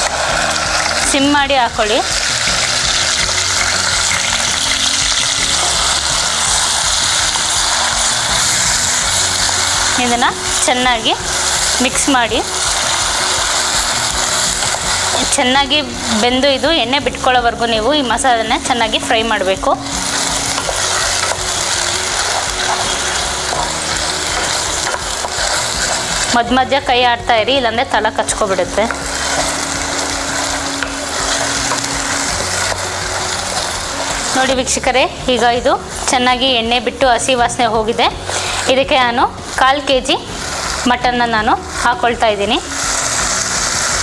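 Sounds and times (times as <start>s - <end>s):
paste sizzling in hot oil: 0.0s - 44.0s
wooden spatula stirring: 19.8s - 26.5s, 28.6s - 36.1s.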